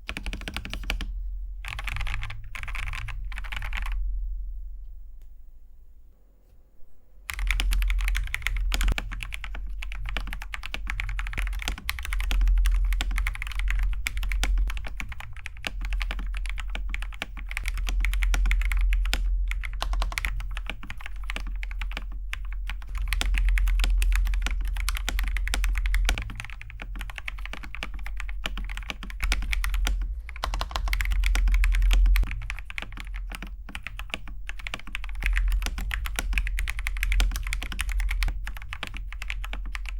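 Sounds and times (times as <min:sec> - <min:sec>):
fast typing on mechanical keyboard: 0:00.0 - 0:04.0, 0:07.3 - 0:39.9.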